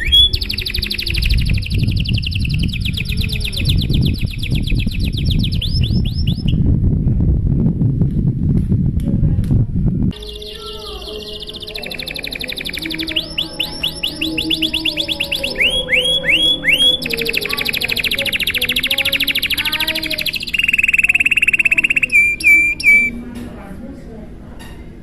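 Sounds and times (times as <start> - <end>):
canary singing trills: 0.0 - 6.6, 10.1 - 23.2.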